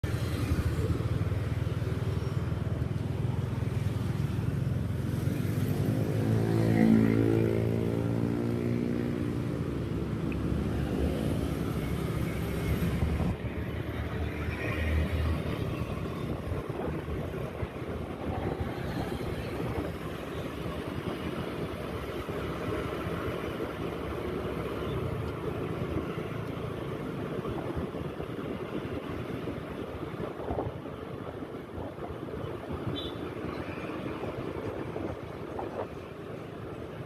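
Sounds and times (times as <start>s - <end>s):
road noise: 0.0s - 37.0s
louder passing engine: 5.3s - 13.4s.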